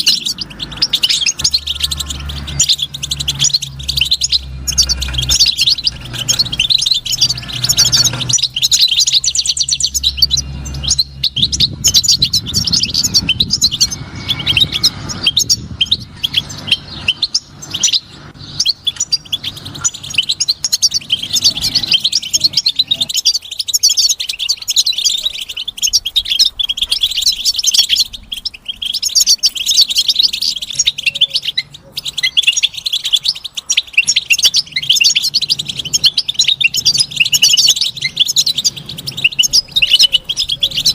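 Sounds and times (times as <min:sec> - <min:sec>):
low rumble: 0:00.0 - 0:18.8
goldfinch twittering song: 0:00.0 - 0:40.9.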